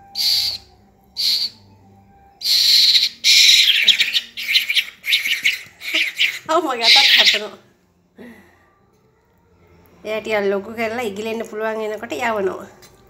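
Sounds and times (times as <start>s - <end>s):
fledgling bird begging calls: 0.1s - 1.6s, 2.4s - 7.5s.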